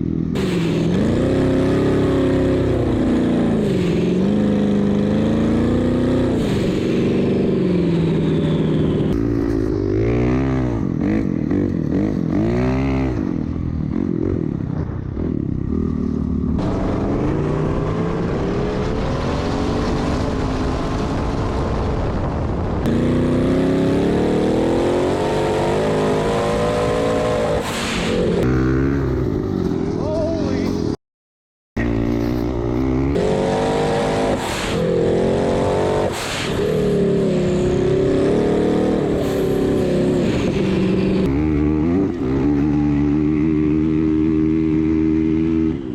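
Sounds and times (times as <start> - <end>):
off-road vehicle engines revving: 0.0 - 21.4, 22.8 - 30.9, 31.8 - 45.9.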